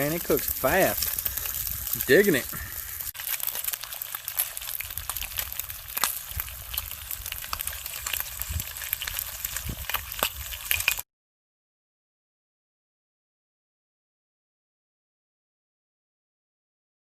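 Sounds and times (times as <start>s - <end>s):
food sizzling in a frying pan: 0.0s - 11.0s
log fire crackling: 0.0s - 11.0s.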